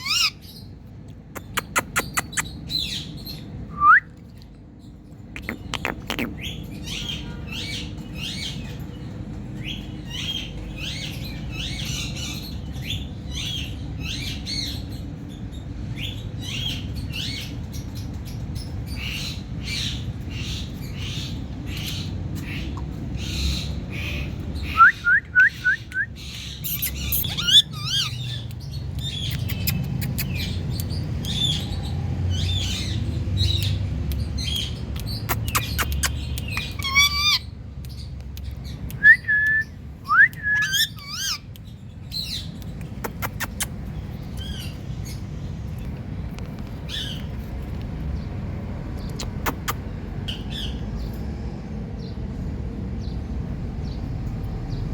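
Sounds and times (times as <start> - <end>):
parakeet chirps and squawks: 0.0 - 0.7, 1.3 - 3.5, 5.1 - 8.8, 9.6 - 24.8, 26.1 - 38.8, 40.6 - 46.0, 46.7 - 47.8, 49.0 - 51.2
steady low rumble: 39.6 - 54.9.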